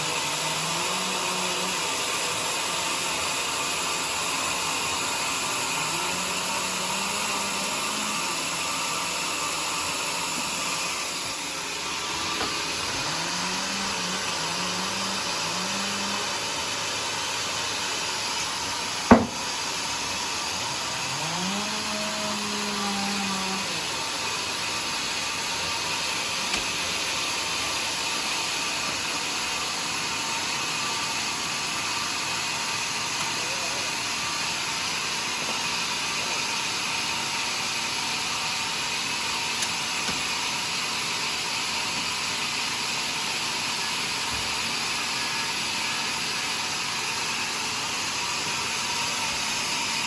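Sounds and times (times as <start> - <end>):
sawmill saw cutting log: 0.0 - 50.0
sharp knock: 19.1 - 19.4.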